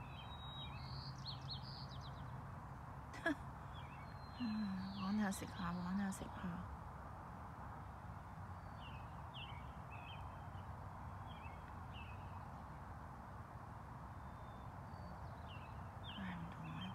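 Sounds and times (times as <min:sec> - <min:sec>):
outdoor background noise: 0:00.0 - 0:16.9
high bird chirps: 0:03.8 - 0:06.0.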